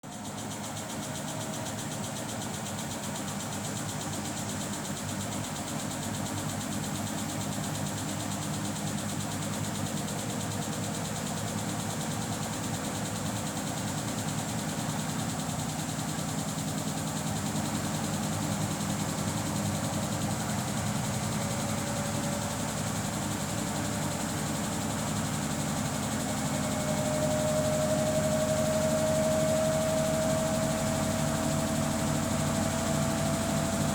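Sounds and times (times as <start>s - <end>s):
washing machine spinning: 14.0s - 33.9s.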